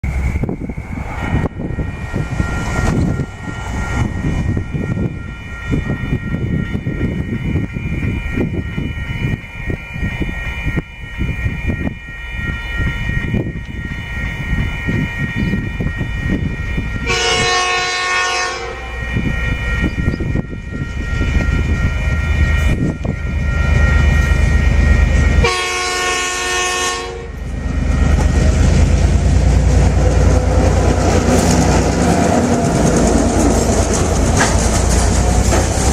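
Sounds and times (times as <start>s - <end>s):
train rumble: 0.0s - 35.9s
locomotive horn blasts: 16.6s - 23.1s, 25.2s - 27.4s.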